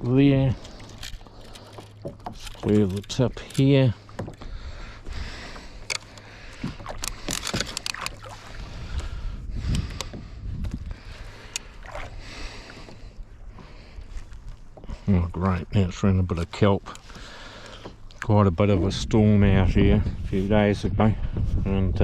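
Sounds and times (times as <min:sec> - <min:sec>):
paddle splashing water: 0:04.0 - 0:09.2, 0:11.1 - 0:15.6
wind rumble on microphone: 0:06.6 - 0:12.7, 0:18.2 - 0:22.0.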